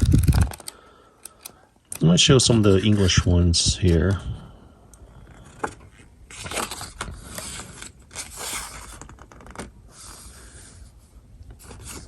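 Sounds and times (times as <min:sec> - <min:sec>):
paper pages turning: 0:05.4 - 0:10.3, 0:11.5 - 0:12.0.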